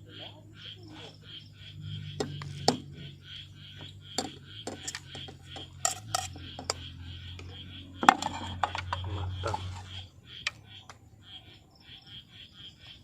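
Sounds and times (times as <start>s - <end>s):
insects chirping: 0.0s - 13.0s
metal utensils clinking on pot: 4.7s - 6.8s, 8.0s - 9.9s.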